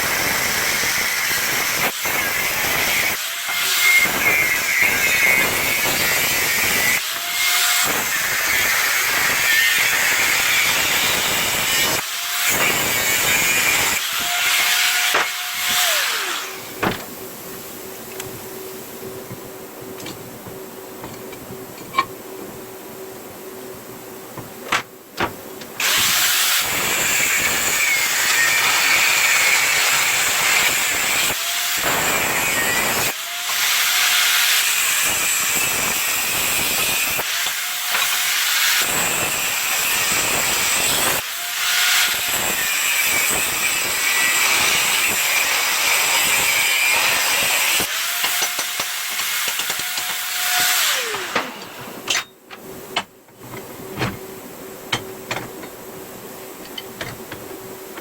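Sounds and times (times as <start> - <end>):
angle grinder cutting steel: 0.0 - 16.8, 25.8 - 52.3.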